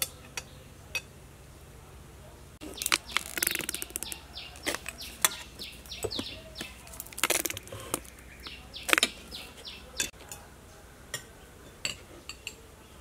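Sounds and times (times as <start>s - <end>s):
small bird chirping: 2.6s - 10.1s.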